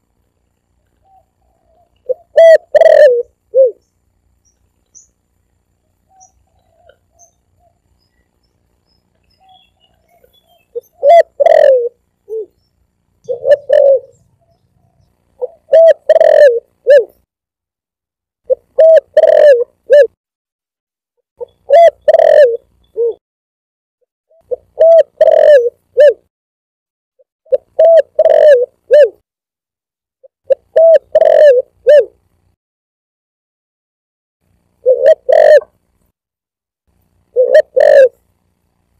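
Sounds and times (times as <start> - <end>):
dove cooing: 1.0 - 3.9, 6.1 - 7.9, 9.4 - 12.6, 13.2 - 17.2, 18.5 - 20.2, 21.4 - 23.2, 24.4 - 26.2, 27.5 - 29.2, 30.5 - 32.2, 34.8 - 35.8, 37.3 - 38.2.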